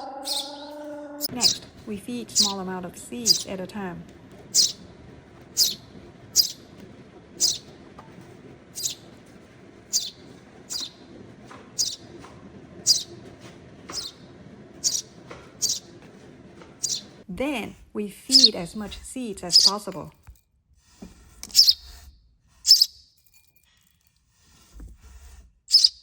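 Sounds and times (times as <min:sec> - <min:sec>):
bird chick begging chirps: 0:00.0 - 0:01.7, 0:02.3 - 0:02.6, 0:03.2 - 0:03.5, 0:04.5 - 0:04.8, 0:05.5 - 0:05.8, 0:06.4 - 0:06.6, 0:07.4 - 0:07.7, 0:08.8 - 0:09.0, 0:09.9 - 0:11.0, 0:11.8 - 0:12.0, 0:12.8 - 0:13.1, 0:14.8 - 0:15.9, 0:16.8 - 0:17.1, 0:18.3 - 0:18.6, 0:19.5 - 0:19.8, 0:21.5 - 0:21.8, 0:22.7 - 0:23.0, 0:25.7 - 0:26.0.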